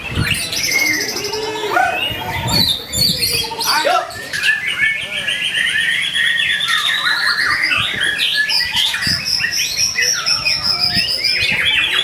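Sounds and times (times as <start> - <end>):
songbird whistles and trills: 4.1 - 12.0.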